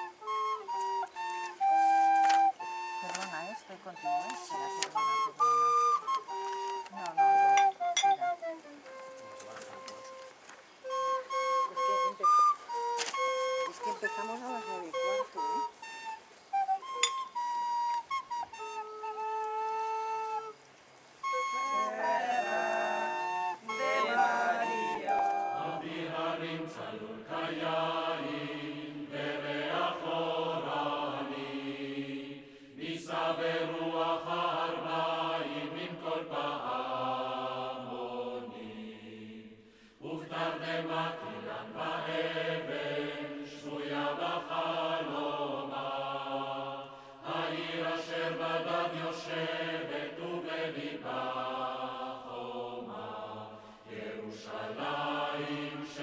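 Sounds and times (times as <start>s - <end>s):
choir singing long notes: 0.0s - 20.6s, 21.2s - 56.0s
recorder notes: 0.0s - 20.6s, 21.2s - 26.0s.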